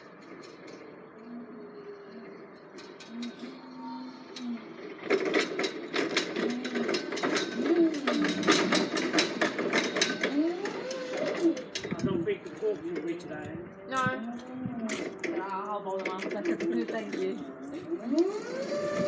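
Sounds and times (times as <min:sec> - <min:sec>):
rapid clattering and knocking: 0:04.9 - 0:13.5
faint voices: 0:10.8 - 0:19.0.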